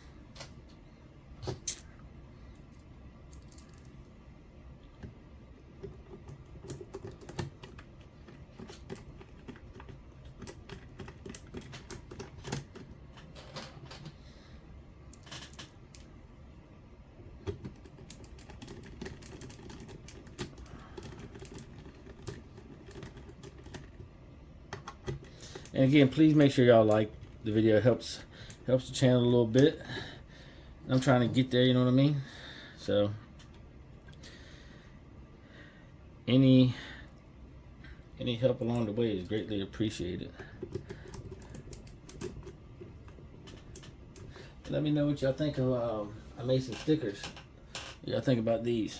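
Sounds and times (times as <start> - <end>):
small parts clicking and tapping: 1.4 - 4.1, 4.9 - 14.2, 15.1 - 16.2, 17.4 - 27.4, 40.4 - 44.8.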